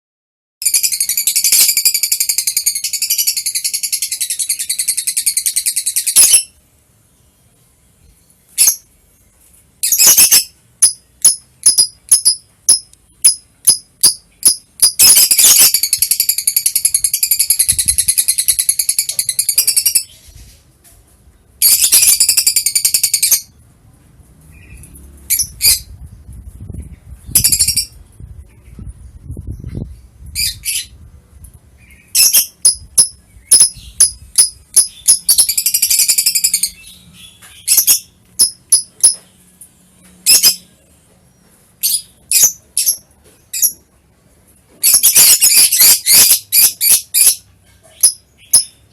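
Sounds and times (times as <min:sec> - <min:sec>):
lovebird twittering: 0:09.8 - 0:20.2
sharp bird chirps: 0:09.8 - 0:20.4.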